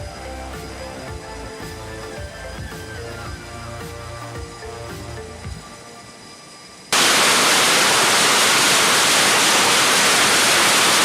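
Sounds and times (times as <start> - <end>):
faint music: 0.0 - 6.9
loud static hiss: 0.0 - 11.0.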